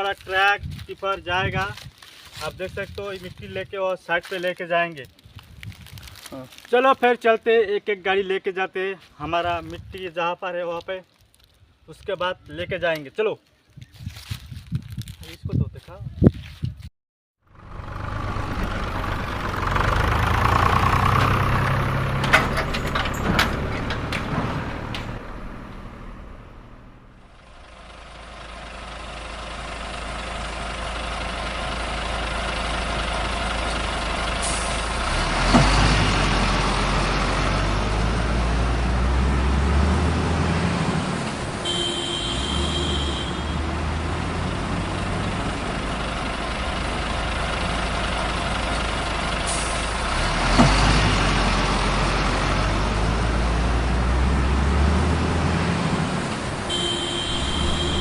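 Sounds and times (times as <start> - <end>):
truck engine rumbling: 17.4 - 58.0.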